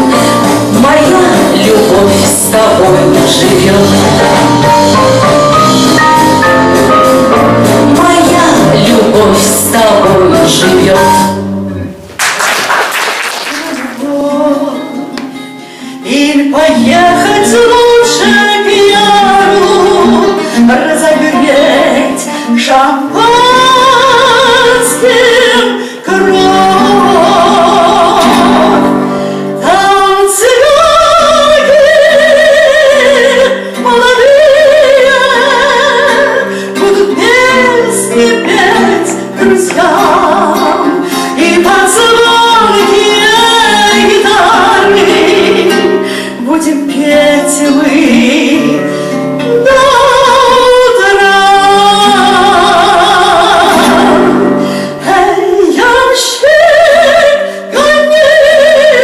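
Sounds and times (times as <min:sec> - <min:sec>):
woman singing with vibrato: 0:00.0 - 0:11.5, 0:13.3 - 0:59.0
instrumental accompaniment: 0:00.0 - 0:56.0
singer breathing: 0:00.1 - 0:00.5, 0:15.5 - 0:16.1, 0:25.7 - 0:26.1, 0:29.0 - 0:29.6, 0:36.4 - 0:36.8, 0:41.0 - 0:41.4, 0:46.0 - 0:46.4, 0:48.8 - 0:49.3, 0:54.5 - 0:55.0, 0:57.4 - 0:57.7.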